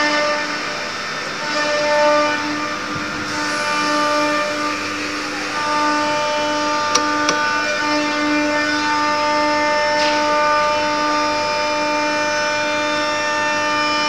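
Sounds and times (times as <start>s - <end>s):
router whining: 6.5s - 7.8s.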